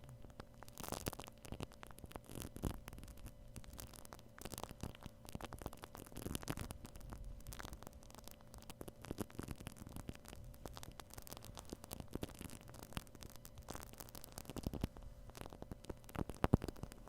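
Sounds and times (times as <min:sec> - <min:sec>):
faint steady hum: 0:00.0 - 0:17.0
foam crackling on microphone: 0:00.0 - 0:17.0.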